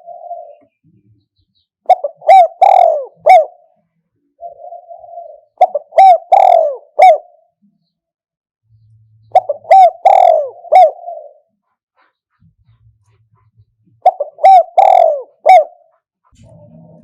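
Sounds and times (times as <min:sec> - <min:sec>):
dove cooing: 0:00.0 - 0:00.8, 0:01.9 - 0:07.6, 0:09.3 - 0:12.8, 0:13.8 - 0:17.0
soft low purring note: 0:16.4 - 0:17.0.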